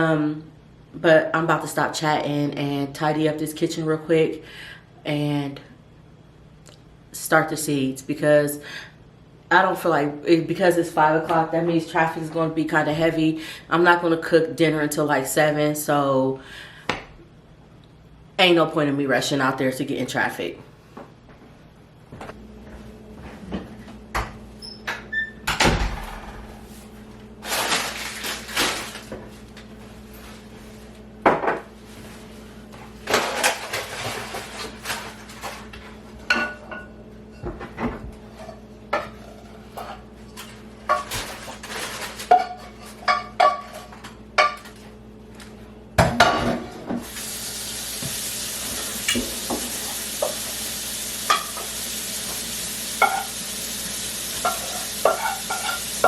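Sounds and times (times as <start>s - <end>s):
dishes and cutlery clattering: 54.4s - 55.9s.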